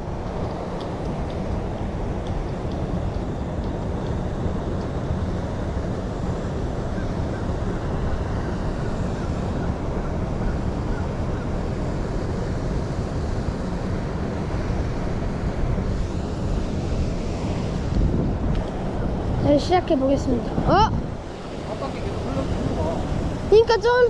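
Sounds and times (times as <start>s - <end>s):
wind buffeting microphone: 0.0s - 24.0s
mountain stream rushing: 13.4s - 24.0s.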